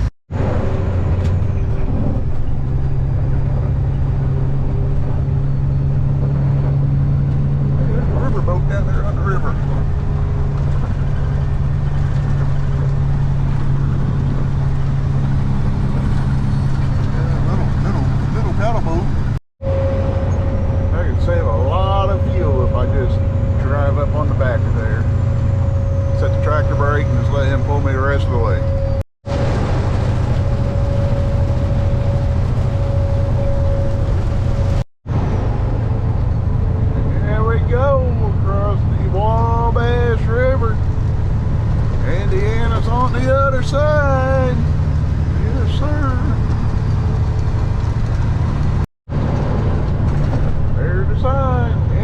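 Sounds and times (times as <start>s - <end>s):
low road rumble: 0.0s - 52.0s
truck diesel engine humming: 0.0s - 52.0s
thin steady whine: 19.6s - 34.8s.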